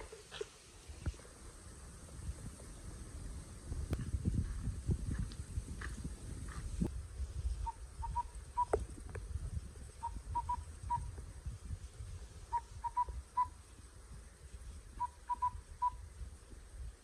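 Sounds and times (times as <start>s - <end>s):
whistled bird call decoy: 7.6s - 8.8s, 10.0s - 11.1s, 12.5s - 13.6s, 15.0s - 16.0s.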